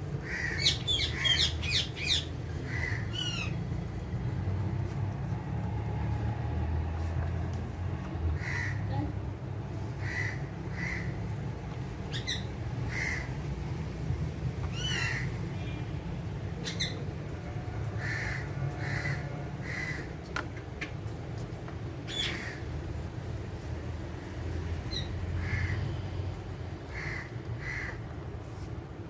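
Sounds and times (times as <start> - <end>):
parakeets calling harshly: 0.2 - 3.6, 8.4 - 8.8, 10.0 - 11.3, 12.1 - 13.4, 14.7 - 15.4, 18.0 - 20.1, 22.1 - 22.7, 26.9 - 28.0.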